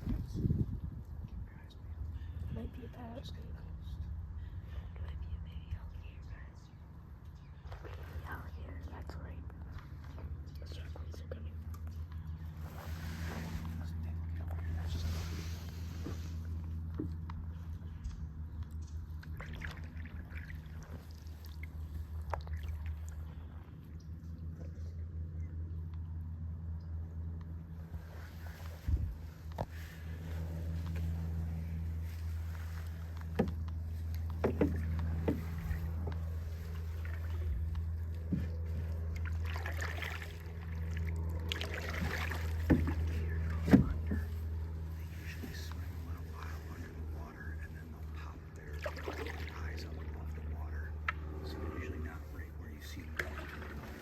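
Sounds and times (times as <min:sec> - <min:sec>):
low motor hum: 0:00.0 - 0:54.0
water splashes and drips: 0:18.6 - 0:23.5, 0:32.0 - 0:44.4, 0:48.0 - 0:51.2, 0:52.8 - 0:54.0
knocks against canoe hull: 0:34.3 - 0:35.6, 0:42.1 - 0:44.3.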